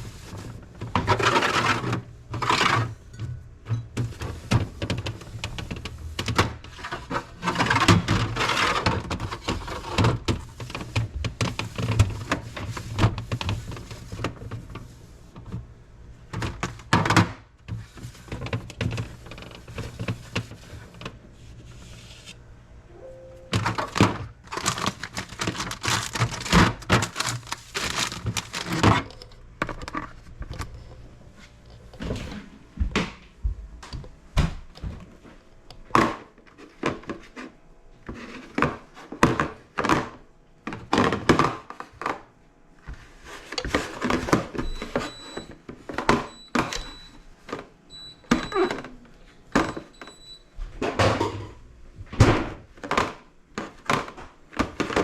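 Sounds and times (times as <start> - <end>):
knocks and clatter of shelves: 0.2 - 15.7, 16.3 - 21.2, 23.5 - 30.1, 32.0 - 35.2, 38.1 - 42.3, 48.3 - 55.0
background music: 22.9 - 23.6.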